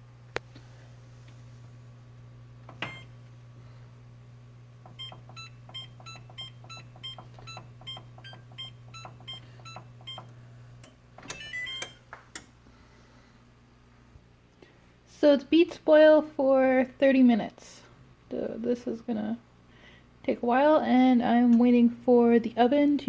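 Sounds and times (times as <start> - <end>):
steady low hum: 0.0 - 23.0
oven control panel beeps: 2.7 - 3.2, 4.9 - 12.1.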